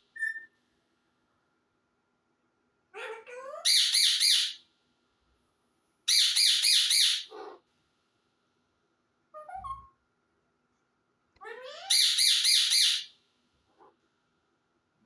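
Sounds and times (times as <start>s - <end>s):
parrot squawking: 3.0s - 4.6s, 6.1s - 7.6s, 9.4s - 9.9s, 11.4s - 13.1s.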